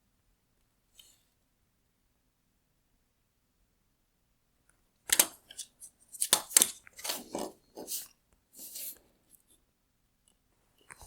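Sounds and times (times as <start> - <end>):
hard plastic clicks and scrapes: 5.1 - 8.1.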